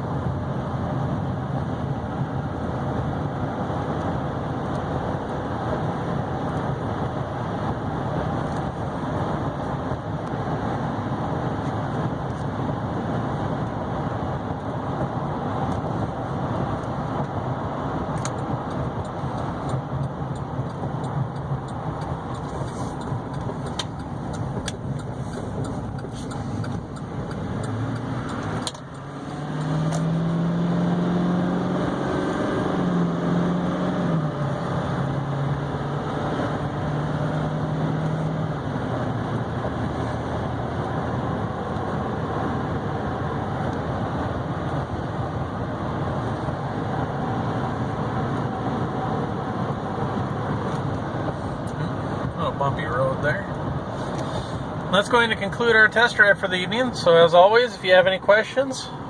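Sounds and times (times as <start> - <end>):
road and tyre noise: 0.0 - 59.0
truck engine hum: 0.0 - 59.0.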